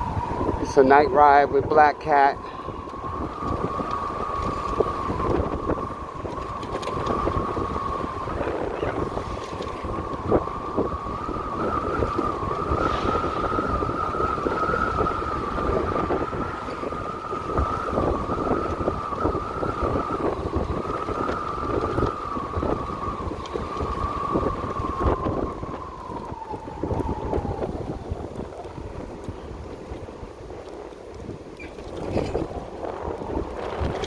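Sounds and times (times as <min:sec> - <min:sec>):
wind buffeting microphone: 0:00.0 - 0:34.0
electric motorcycle motor whine: 0:02.4 - 0:28.5.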